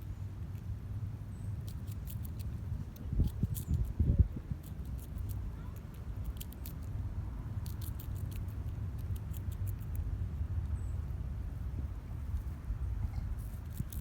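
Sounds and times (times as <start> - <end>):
squirrel chewing crunches: 1.5 - 10.7, 11.4 - 14.0.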